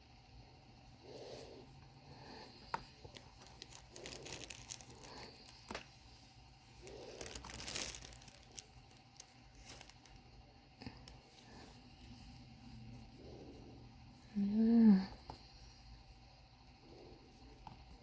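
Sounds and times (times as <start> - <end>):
crinkling and rustling of craft pieces: 1.6 - 12.4.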